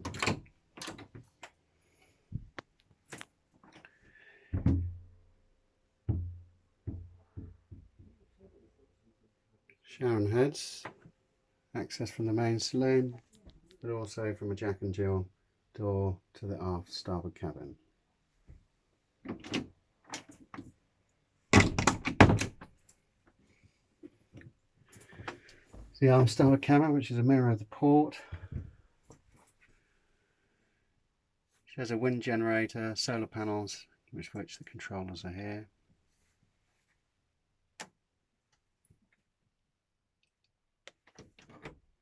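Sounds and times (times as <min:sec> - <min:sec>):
knocks and thumps with low boom: 0:04.6 - 0:05.1, 0:06.1 - 0:08.1.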